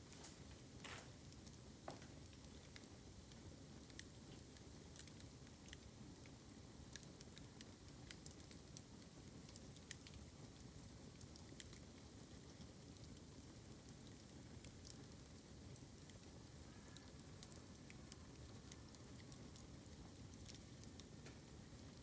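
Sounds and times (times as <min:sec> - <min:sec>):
fire crackling and snapping: 0:00.0 - 0:22.0
low fire rumble: 0:00.0 - 0:22.0.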